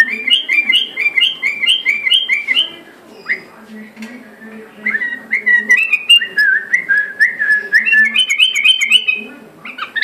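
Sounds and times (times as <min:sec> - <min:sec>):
bulbul singing whistled notes: 0:04.8 - 0:09.2.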